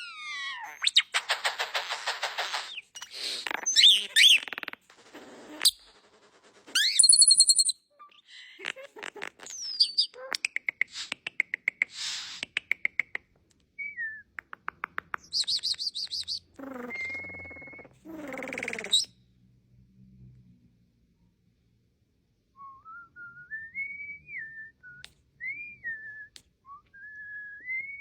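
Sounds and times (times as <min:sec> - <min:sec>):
starling singing: 0:15.2 - 0:19.1.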